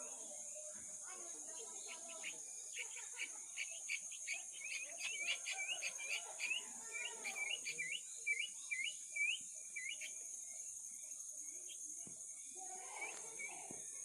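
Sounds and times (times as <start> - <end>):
high bird chirps: 1.8 - 10.2.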